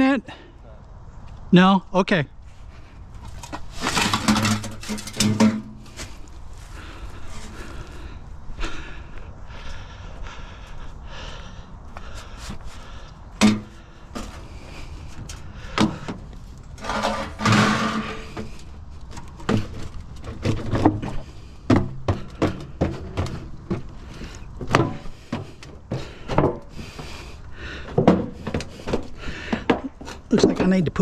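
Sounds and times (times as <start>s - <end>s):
scrap knocking and clattering: 3.3s - 6.1s, 16.8s - 24.0s, 27.8s - 31.0s.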